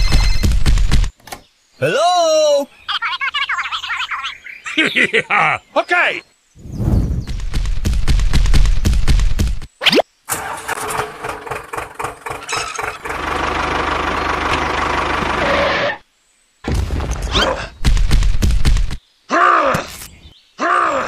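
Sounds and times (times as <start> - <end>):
engine cranking and running: 10.3 - 15.9.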